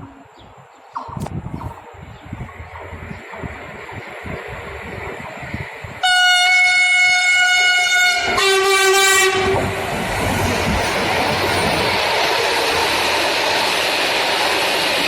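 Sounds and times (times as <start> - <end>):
train rushing past: 2.3 - 15.0
train horn two notes: 6.0 - 9.7.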